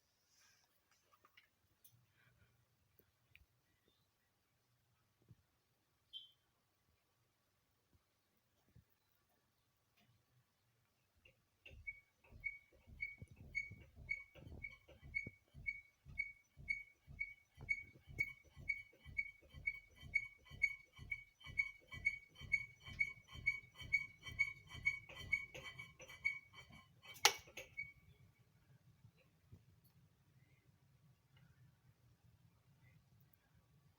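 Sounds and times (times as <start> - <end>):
wobbling ceiling fan ticking: 11.2 - 28.0.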